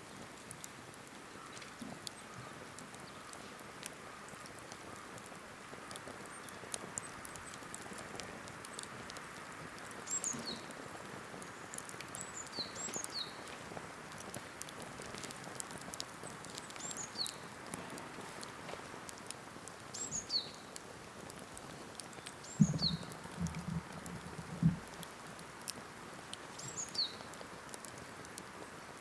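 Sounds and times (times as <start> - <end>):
campfire crackling and popping: 0.0 - 29.0.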